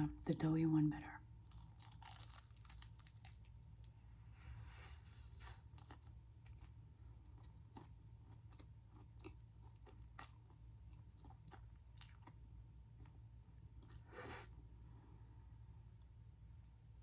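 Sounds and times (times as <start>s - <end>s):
crisp crunches of fried coating: 1.4s - 3.9s
close chewing: 1.5s - 3.7s, 5.4s - 12.4s.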